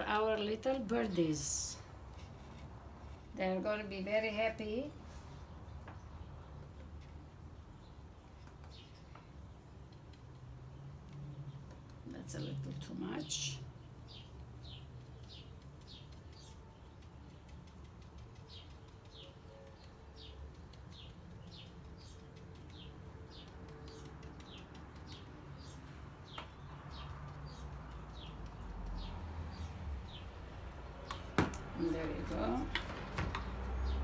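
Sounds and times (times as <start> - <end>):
small bird chirping: 5.3 - 32.7.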